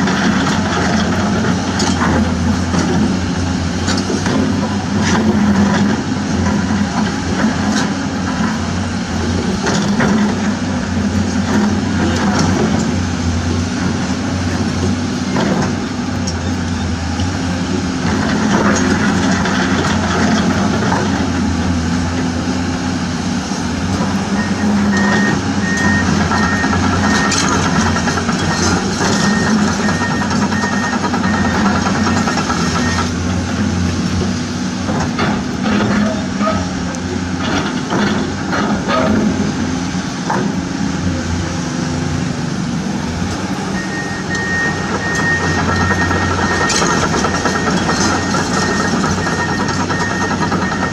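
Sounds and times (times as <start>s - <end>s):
truck engine running: 0.0s - 50.9s
reversing alarm beeping: 24.3s - 27.8s, 28.4s - 33.1s, 43.8s - 50.9s.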